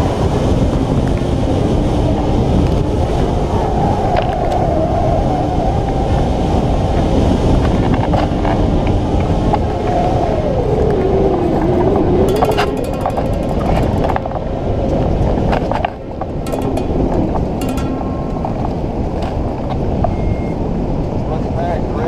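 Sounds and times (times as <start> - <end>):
strong wind on microphone: 0.0 - 15.7.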